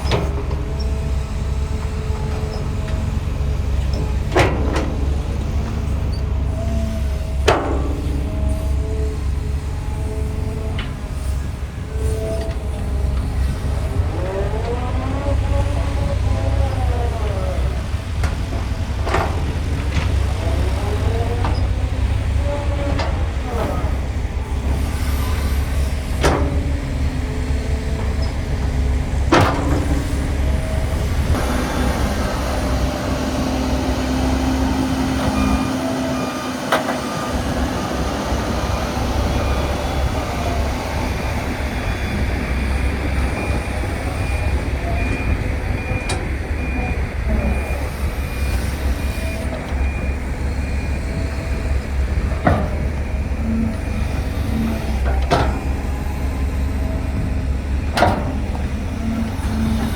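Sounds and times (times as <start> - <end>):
diesel machinery rumbling: 0.0 - 59.9
reversing alarm beeping: 29.8 - 57.4.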